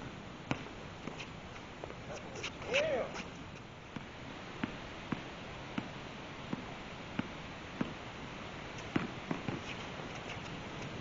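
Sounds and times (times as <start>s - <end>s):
steady background hiss: 0.0s - 11.0s
basketball bouncing: 8.9s - 9.6s.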